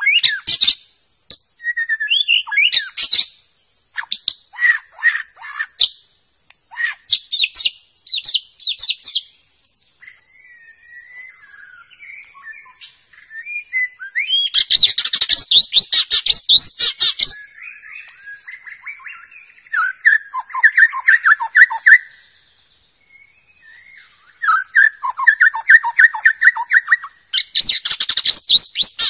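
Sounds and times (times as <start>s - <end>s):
bird singing: 0.0s - 29.0s.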